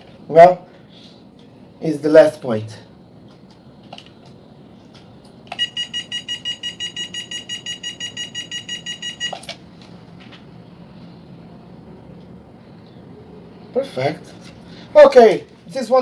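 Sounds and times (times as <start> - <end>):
rapid high electronic beeps: 5.5 - 9.8.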